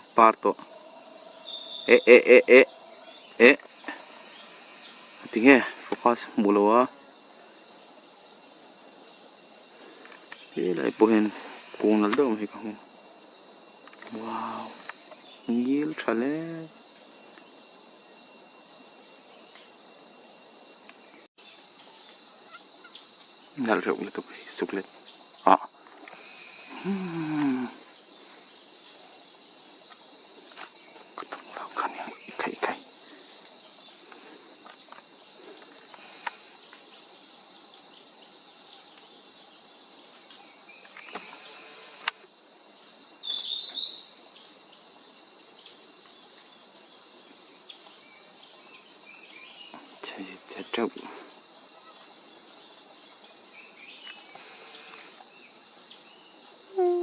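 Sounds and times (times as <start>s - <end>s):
crickets buzzing: 0.0s - 57.0s
faint vocal sounds: 25.5s - 27.9s.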